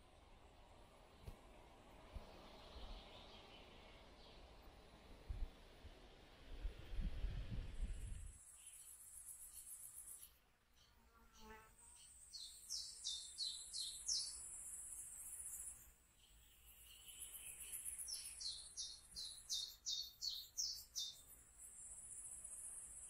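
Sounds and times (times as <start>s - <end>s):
songbird whistling: 18.1s - 21.2s.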